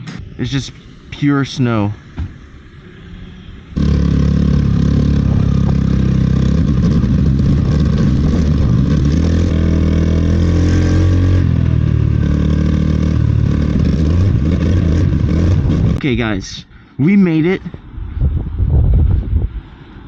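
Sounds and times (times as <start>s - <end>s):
road and air noise: 0.0s - 20.0s
scooter motor running: 3.8s - 16.0s.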